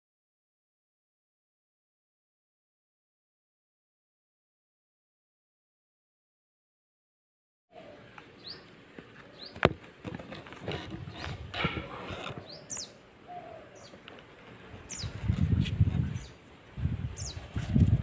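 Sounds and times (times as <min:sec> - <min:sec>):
small birds chirping: 0:07.8 - 0:16.4, 0:17.1 - 0:18.0.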